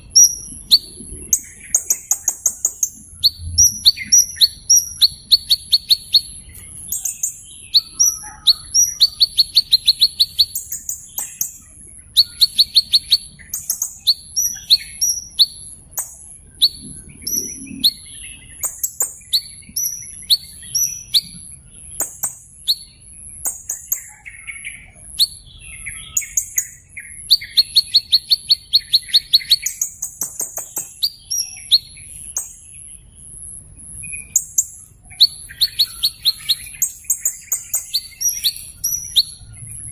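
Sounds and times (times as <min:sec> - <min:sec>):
small bird chirping and trilling: 0:00.0 - 0:39.9.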